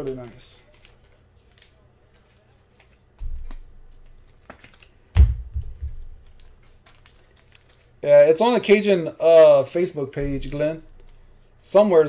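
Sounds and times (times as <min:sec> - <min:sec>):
trading cards being flipped: 0:00.0 - 0:08.0, 0:08.7 - 0:11.5
knocks: 0:05.2 - 0:06.1.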